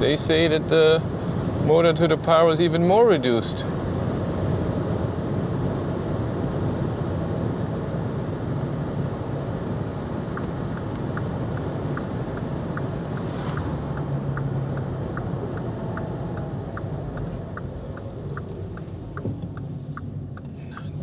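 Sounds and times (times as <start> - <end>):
tyre and road noise: 8.4 - 21.0
turn signal ticking: 10.2 - 21.0.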